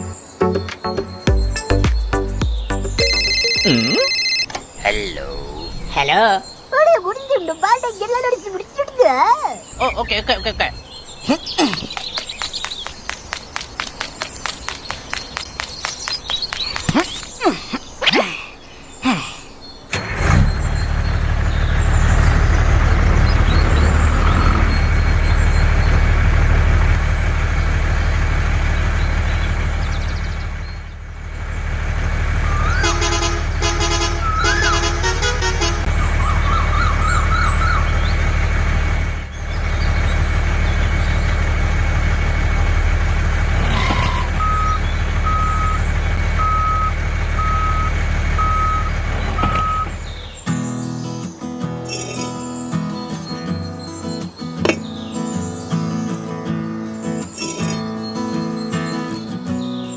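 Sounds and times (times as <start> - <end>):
reversing alarm beeping: 3.0 - 4.6, 44.4 - 50.0
heavy vehicle engine running: 20.0 - 50.4
pulsed horn toot: 32.6 - 36.2.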